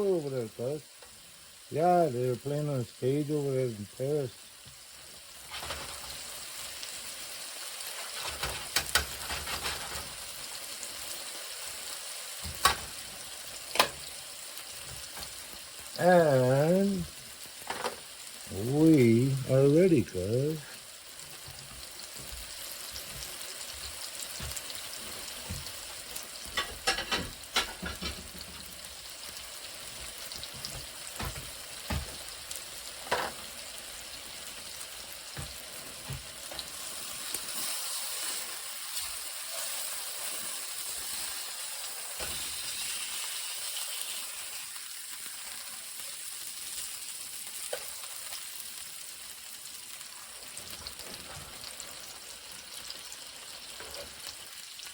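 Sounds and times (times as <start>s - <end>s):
food sizzling in a frying pan: 0.0s - 54.9s
utensil scraping a pan: 7.9s - 10.2s.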